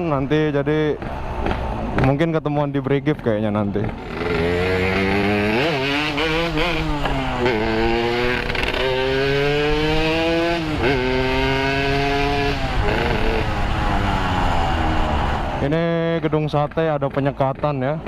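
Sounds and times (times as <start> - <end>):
motorcycle engine revving: 3.8 - 16.7.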